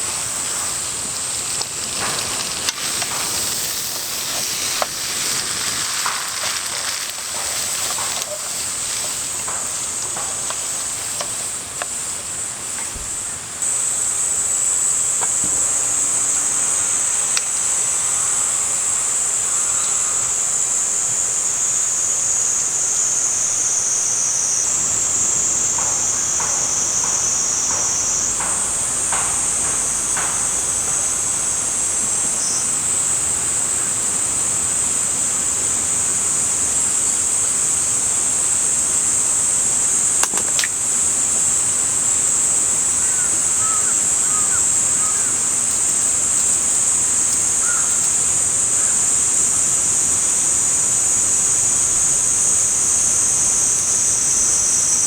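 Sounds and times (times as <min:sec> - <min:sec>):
cicadas singing: 0:00.0 - 0:55.0
sharp click: 0:40.2 - 0:40.8
faint bird chirps: 0:43.0 - 0:46.1, 0:47.3 - 0:48.2.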